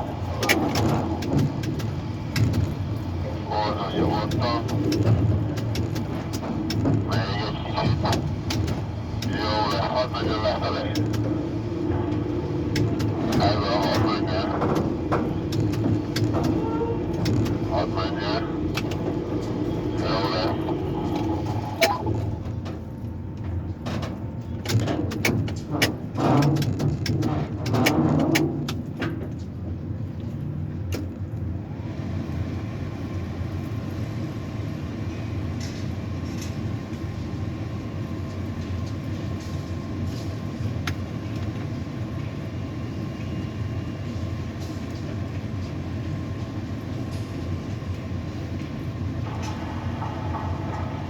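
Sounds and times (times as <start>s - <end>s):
crane machinery humming: 0.0s - 24.6s, 31.5s - 51.0s
sharp clicks and knocks: 0.4s - 3.1s, 4.2s - 22.8s, 23.4s - 29.5s.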